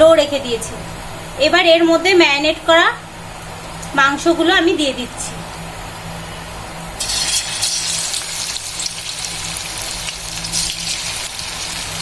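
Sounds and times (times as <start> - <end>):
chicken sizzling in hot oil: 7.0 - 12.0.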